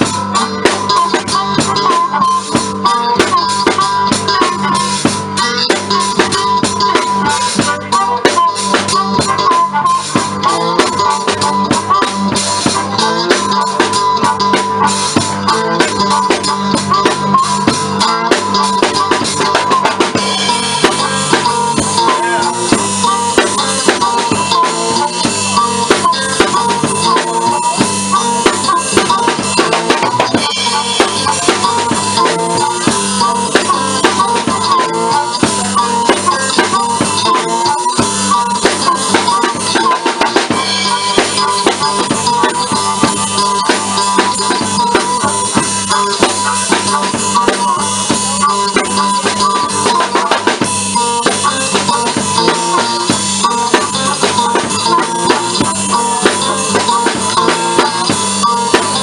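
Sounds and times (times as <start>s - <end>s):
blues band playing: 0.0s - 59.0s
drum kit beat: 0.0s - 59.0s
wavering lead melody: 0.0s - 59.0s.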